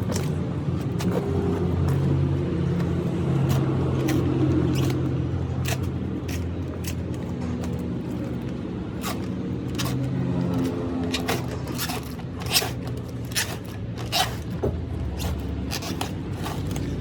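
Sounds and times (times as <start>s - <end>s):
engine-like hum: 0.0s - 17.0s
sharp scraping strokes: 9.0s - 17.0s.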